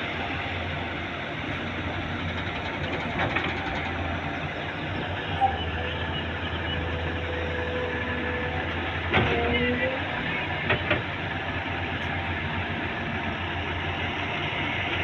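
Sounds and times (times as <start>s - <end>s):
excavator engine drone: 0.0s - 15.0s.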